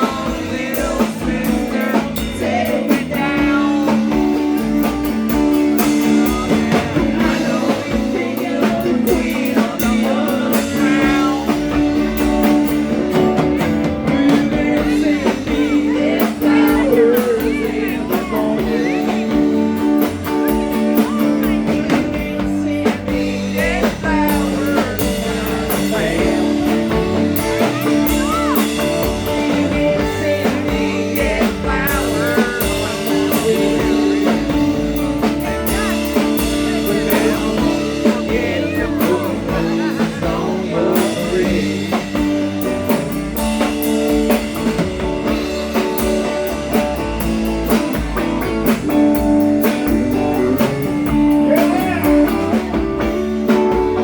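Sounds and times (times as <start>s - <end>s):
drum kit: 0.0s - 54.0s
electric guitar: 0.0s - 54.0s
live rock band playing blues: 0.0s - 54.0s.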